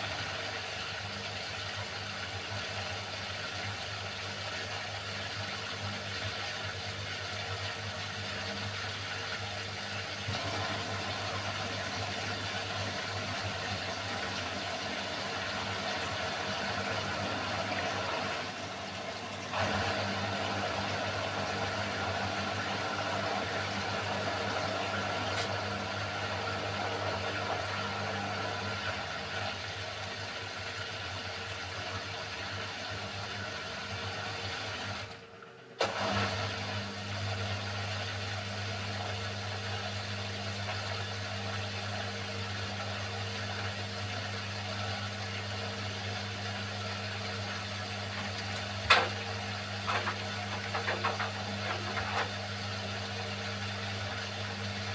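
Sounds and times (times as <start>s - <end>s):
washing machine running: 10.2s - 30.9s, 35.8s - 54.9s
washing machine click: 10.3s - 25.5s.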